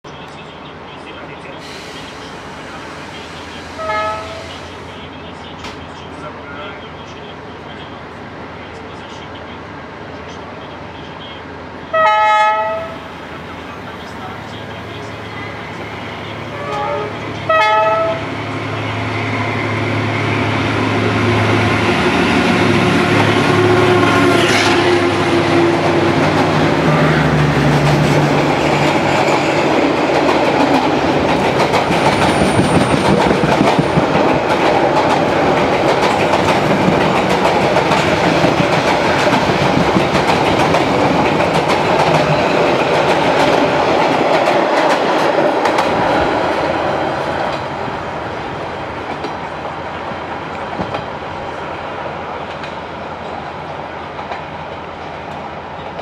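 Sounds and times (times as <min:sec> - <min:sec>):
train horn toots: 0:03.6 - 0:04.7, 0:11.9 - 0:13.0, 0:16.5 - 0:18.4, 0:21.2 - 0:26.2, 0:26.8 - 0:27.4
locomotive engine droning: 0:10.2 - 0:44.8
train wheels clicking over rail joints: 0:25.5 - 0:46.3.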